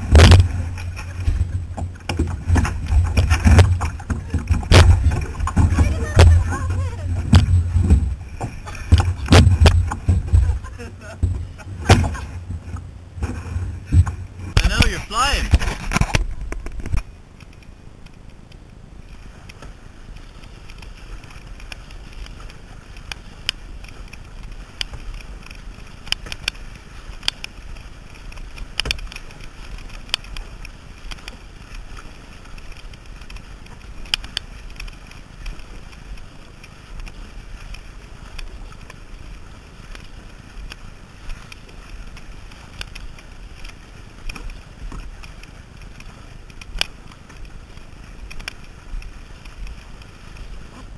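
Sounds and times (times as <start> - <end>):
paddle splashing water: 0.0 - 50.9
steady low rumble: 0.0 - 50.9.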